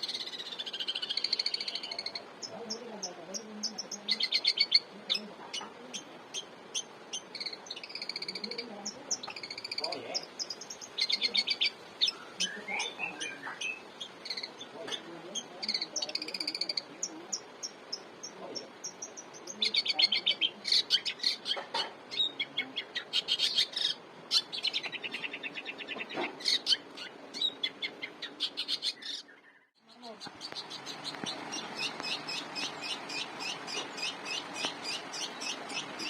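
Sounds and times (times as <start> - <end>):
shrike chattering song: 0.0 - 36.0.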